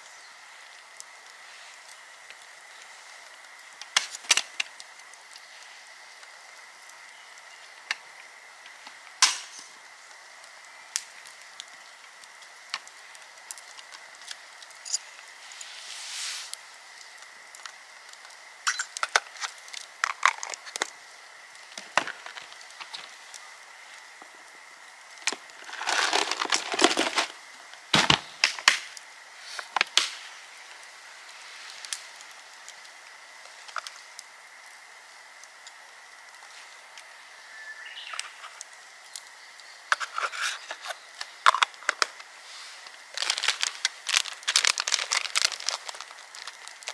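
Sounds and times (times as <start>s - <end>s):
faint steady hiss: 0.0s - 46.9s
sharp cracks of wood snapping: 9.2s - 9.8s, 25.3s - 29.1s, 29.7s - 30.3s
dry wood crunching and rustling: 19.3s - 24.2s, 25.2s - 28.9s, 42.8s - 46.9s.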